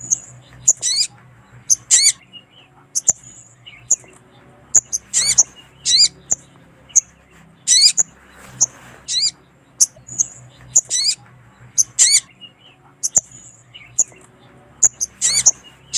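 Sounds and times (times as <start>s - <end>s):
high bird chips: 0.0s - 1.1s, 4.8s - 11.2s
bird calls zigzagging down: 4.8s - 7.1s, 7.7s - 11.2s.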